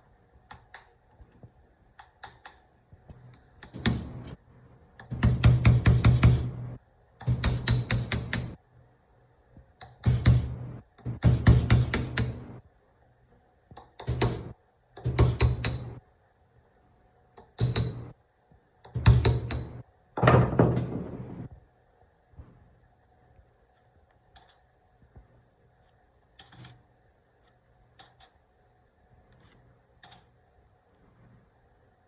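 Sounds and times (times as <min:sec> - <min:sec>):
hammer tapping on ringing metal: 0:05.0 - 0:06.6, 0:07.2 - 0:08.6, 0:09.8 - 0:10.6, 0:11.2 - 0:12.6, 0:13.8 - 0:16.0, 0:17.4 - 0:18.1, 0:18.9 - 0:19.8.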